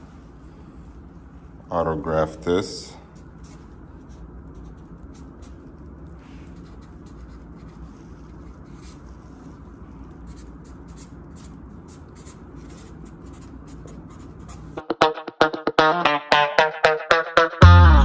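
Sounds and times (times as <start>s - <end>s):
low steady hum: 0.0s - 14.8s
marker squeaking on paper: 3.2s - 5.6s, 6.5s - 14.8s
loud plucked beat-driven music: 14.8s - 18.0s.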